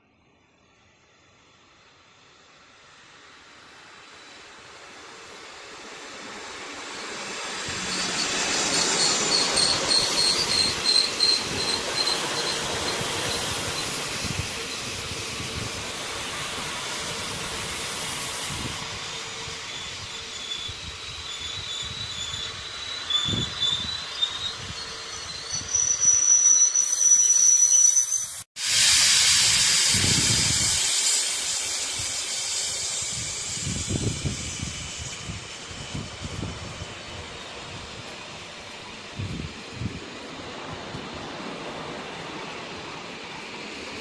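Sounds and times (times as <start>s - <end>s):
train rushing hiss: 0.7s - 44.0s
metallic wheel squeals: 6.9s - 14.9s, 18.9s - 28.4s.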